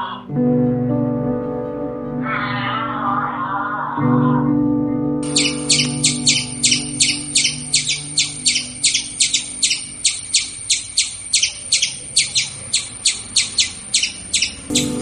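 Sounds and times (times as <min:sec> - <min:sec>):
small bird chirping: 0:05.2 - 0:15.0.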